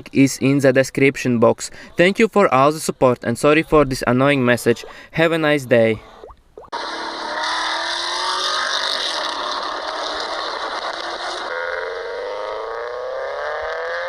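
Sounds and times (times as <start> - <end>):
car engine accelerating: 6.8 - 14.0.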